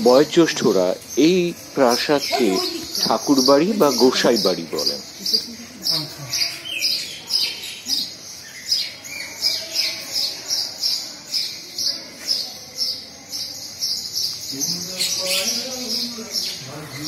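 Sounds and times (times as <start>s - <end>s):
lower falling bird calls: 0.0s - 10.8s
birds chirping: 0.0s - 17.0s.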